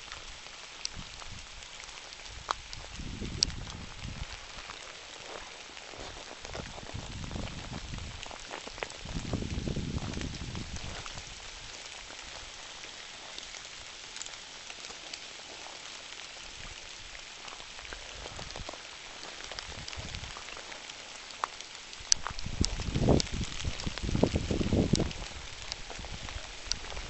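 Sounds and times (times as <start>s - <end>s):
rain hissing: 0.0s - 27.0s
raindrops ticking: 0.0s - 27.0s.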